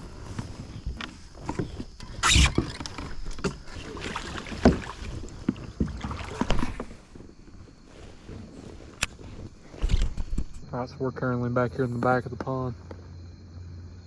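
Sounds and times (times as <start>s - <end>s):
water splashing: 1.5s - 8.2s
paddle knocking on plastic hull: 4.3s - 7.0s.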